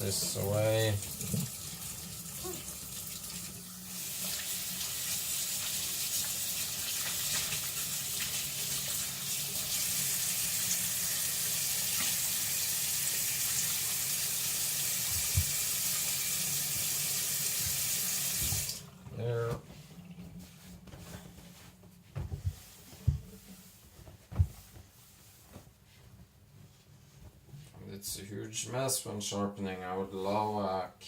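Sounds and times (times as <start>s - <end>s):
tap water running into sink: 0.0s - 18.9s.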